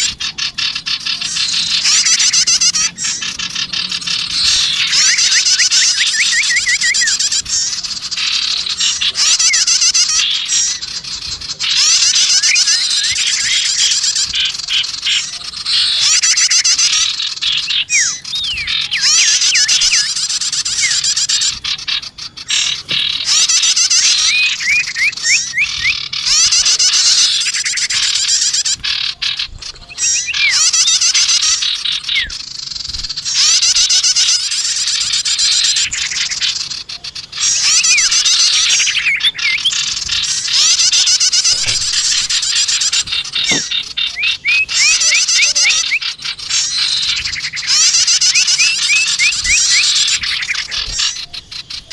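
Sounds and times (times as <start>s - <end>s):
songbirds trilling and chirping: 0.0s - 51.9s.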